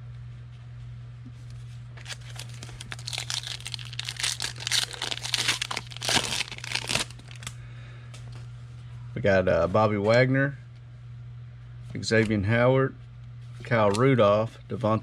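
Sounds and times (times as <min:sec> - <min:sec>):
steady low hum: 0:00.0 - 0:15.0
wrapper tearing and crinkling: 0:02.0 - 0:07.5.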